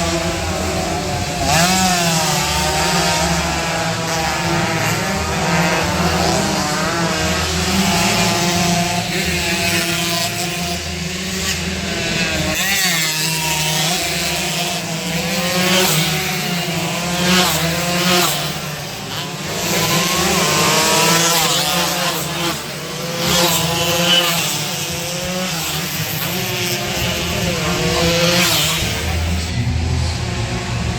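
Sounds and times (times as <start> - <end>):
motorcycles revving: 0.0 - 30.9.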